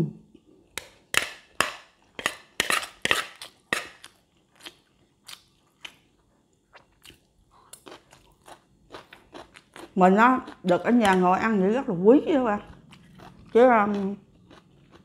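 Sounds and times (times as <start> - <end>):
chewing crunchy food: 1.9 - 11.3, 12.6 - 15.0.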